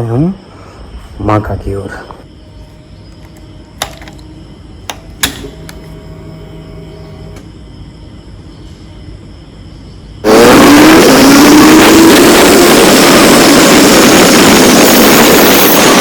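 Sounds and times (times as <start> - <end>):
motorcycle engine accelerating: 10.2 - 16.0.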